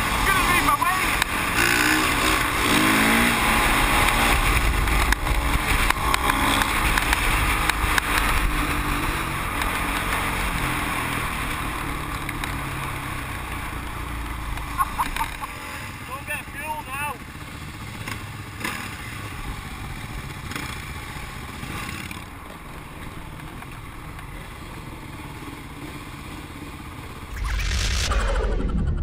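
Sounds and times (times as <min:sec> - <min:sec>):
dirt bike engine running: 0:00.0 - 0:26.7
wind rushing over microphone: 0:27.3 - 0:29.0.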